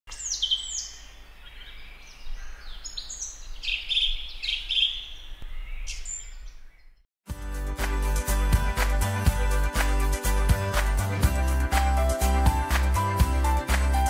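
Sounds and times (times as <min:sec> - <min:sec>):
birds chirping and singing: 0:00.1 - 0:07.0.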